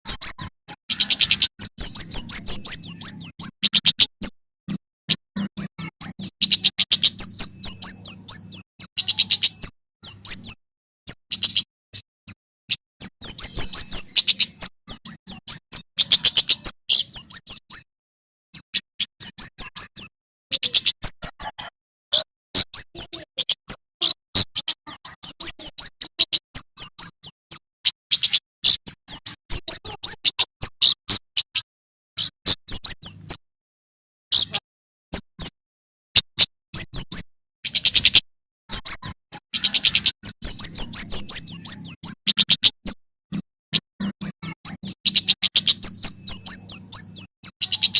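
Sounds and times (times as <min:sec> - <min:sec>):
bird singing high chirps: 0:00.0 - 0:17.9, 0:18.5 - 0:33.4, 0:34.3 - 0:35.6, 0:36.2 - 0:47.9.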